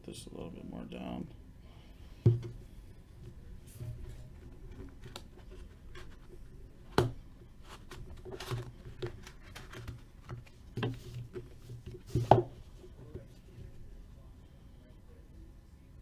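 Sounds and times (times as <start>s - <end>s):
cards sliding and rustling: 7.6s - 12.4s.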